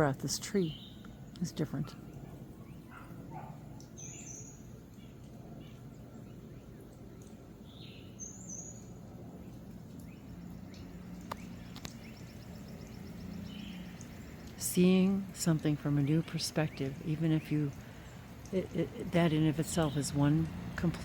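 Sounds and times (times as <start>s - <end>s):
small birds chirping: 0.0s - 21.0s
faint clicks: 9.5s - 13.0s, 14.0s - 14.6s.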